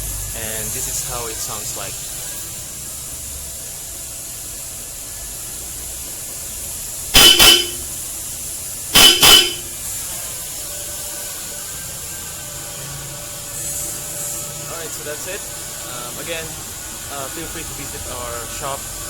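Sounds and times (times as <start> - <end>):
car horns double beeps: 7.2 - 8.0, 9.0 - 9.8.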